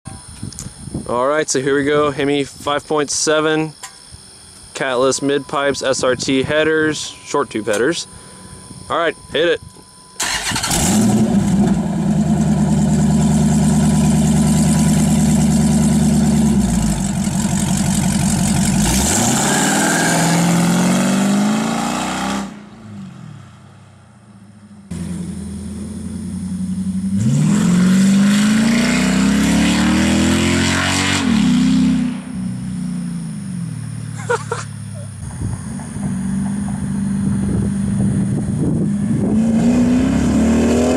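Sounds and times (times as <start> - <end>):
loud car engine revving: 10.2 - 23.5, 24.9 - 34.4, 35.2 - 40.9.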